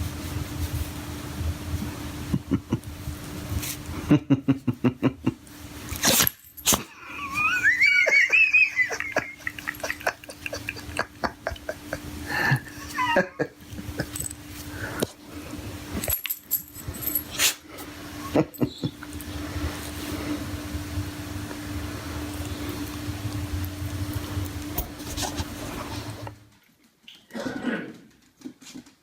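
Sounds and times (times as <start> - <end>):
dog whining: 6.9 - 9.8, 12.7 - 13.5.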